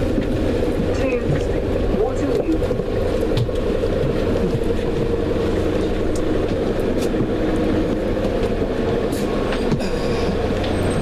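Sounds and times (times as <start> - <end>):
moving train hum and rumble: 0.0 - 11.0.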